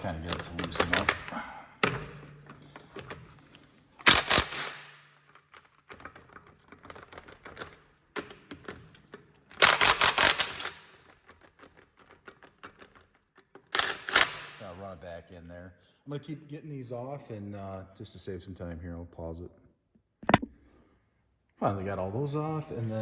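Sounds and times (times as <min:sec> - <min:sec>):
impact wrench hammering: 0:04.0 - 0:05.0, 0:09.6 - 0:10.8, 0:13.8 - 0:14.6.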